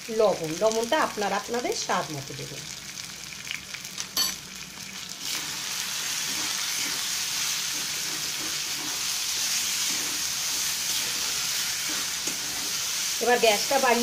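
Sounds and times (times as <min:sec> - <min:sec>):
meat sizzling in a wok: 0:00.0 - 0:14.0
spatula stirring and scraping: 0:05.2 - 0:14.0.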